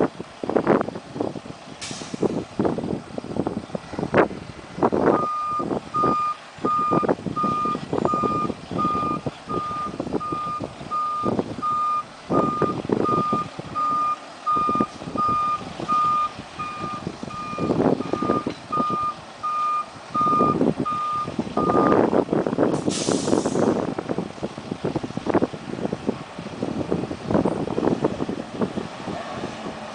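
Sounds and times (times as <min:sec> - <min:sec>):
engine rumble: 0:00.0 - 0:29.9
truck backup alarm beeping: 0:05.1 - 0:22.1.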